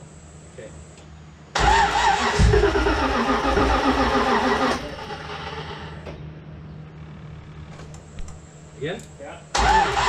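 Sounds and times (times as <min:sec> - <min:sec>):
engine starter cranking whine: 0:01.6 - 0:06.2, 0:09.6 - 0:10.0.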